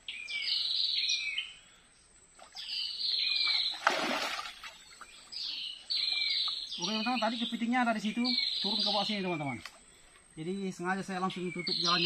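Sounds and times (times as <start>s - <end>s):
water splash: 3.4s - 5.0s.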